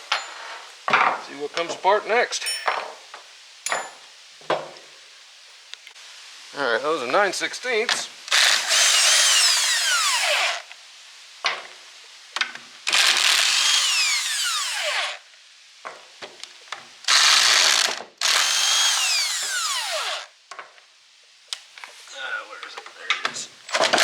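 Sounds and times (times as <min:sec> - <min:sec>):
impact wrench bursts: 0:17.1 - 0:20.3.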